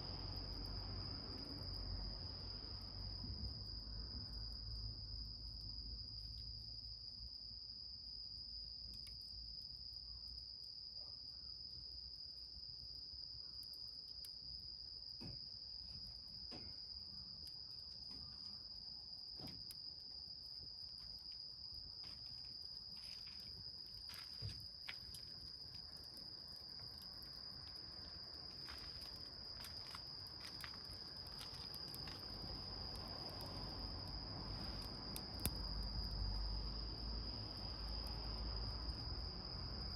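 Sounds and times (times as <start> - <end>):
crickets trilling: 0.0 - 39.9
wood fire crackling: 20.4 - 39.9.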